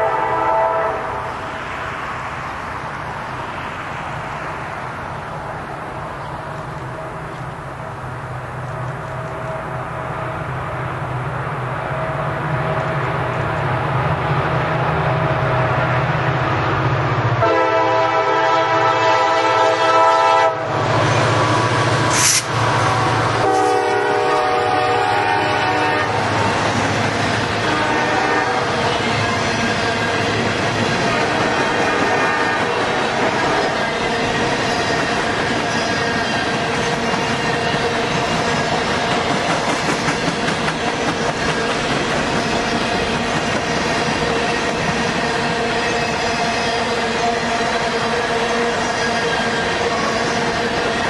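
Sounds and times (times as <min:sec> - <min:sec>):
train air horn blasts: 0:00.0 - 0:01.4, 0:17.4 - 0:26.4, 0:27.6 - 0:28.8, 0:31.1 - 0:33.8
diesel locomotive engines rumbling: 0:00.0 - 0:51.0
wheels clattering on rails: 0:28.8 - 0:46.3.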